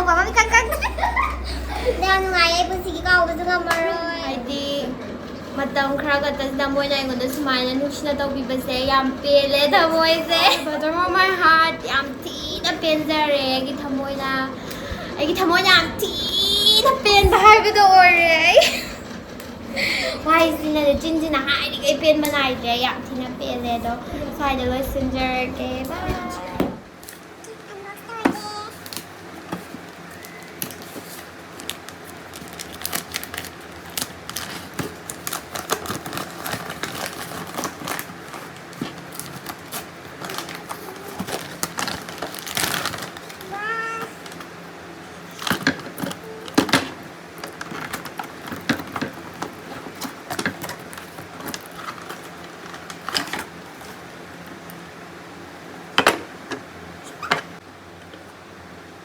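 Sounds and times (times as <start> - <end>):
packaging crinkling and rustling: 28.7 - 44.5, 45.3 - 54.6.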